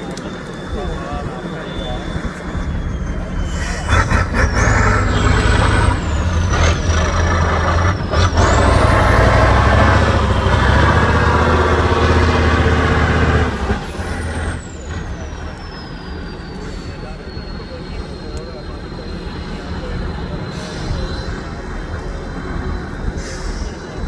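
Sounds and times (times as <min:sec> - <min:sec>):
high whine: 0:00.0 - 0:09.4
truck engine working hard: 0:00.0 - 0:24.0
short air hisses: 0:03.4 - 0:06.2, 0:23.2 - 0:23.9.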